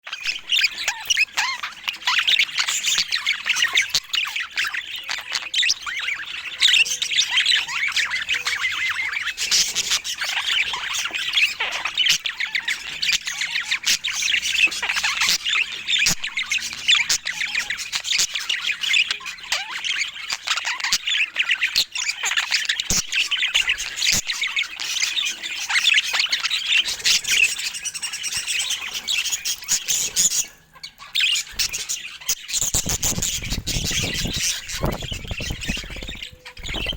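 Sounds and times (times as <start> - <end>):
budgerigars chattering and chirping: 0.1 - 36.9.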